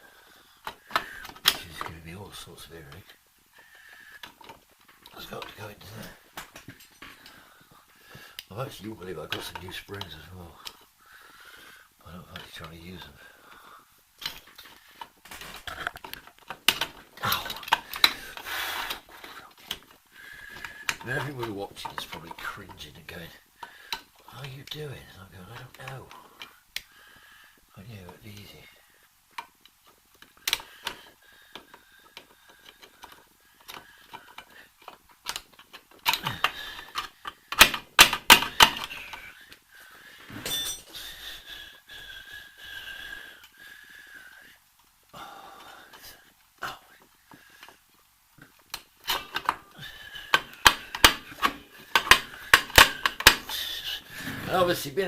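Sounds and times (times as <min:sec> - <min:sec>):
metal parts clinking and scraping: 0:40.3 - 0:41.1, 0:48.6 - 0:54.9
metal brake parts clinking: 0:40.4 - 0:41.0.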